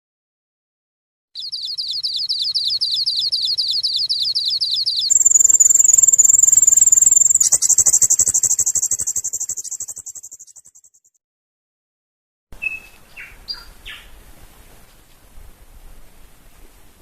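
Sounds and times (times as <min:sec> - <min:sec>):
bird singing trills: 0:01.4 - 0:11.2, 0:12.6 - 0:14.1.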